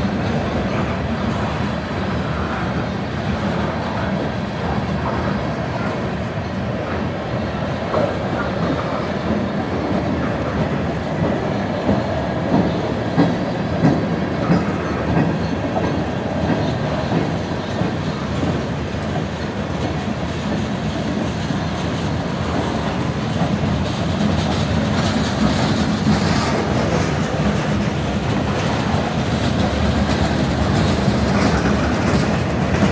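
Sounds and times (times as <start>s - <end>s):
freight train cars rolling past: 0.0s - 32.9s
wheels clicking over rail joints: 7.9s - 32.9s.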